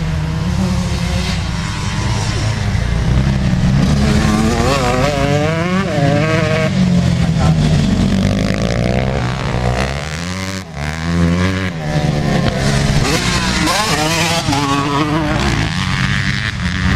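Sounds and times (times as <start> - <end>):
dirt bike engine droning: 0.0 - 16.9
dirt bike engine revving: 0.0 - 16.9.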